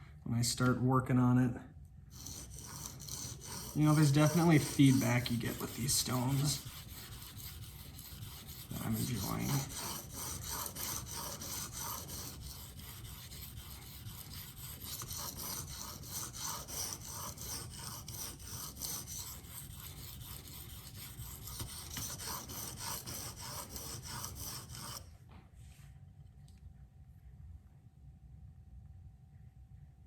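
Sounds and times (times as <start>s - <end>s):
knife scraping on sharpening stone: 2.2s - 25.0s.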